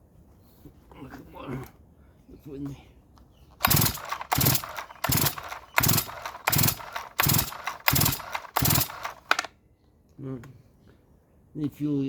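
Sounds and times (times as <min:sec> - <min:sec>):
chainsaw starter cord yanks: 0:03.6 - 0:09.5.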